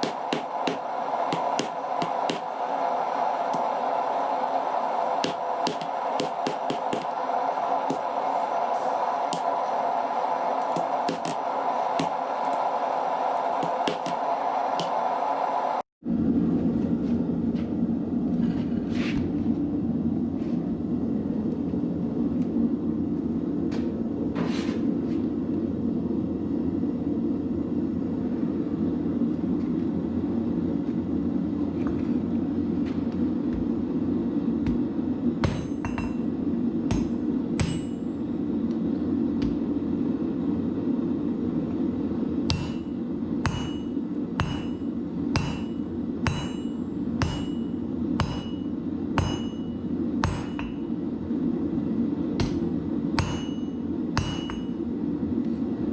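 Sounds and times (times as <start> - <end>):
hammer striking hot steel: 0.0 - 2.8, 3.5 - 3.8, 5.1 - 9.8, 10.6 - 12.6, 13.5 - 15.0, 34.6 - 38.2, 42.5 - 50.9, 52.4 - 54.8
low rushing noise: 0.0 - 16.6.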